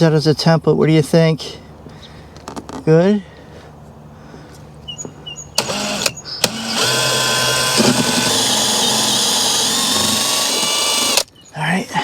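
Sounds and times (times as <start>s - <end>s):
power drill cutting wood: 5.6s - 11.3s.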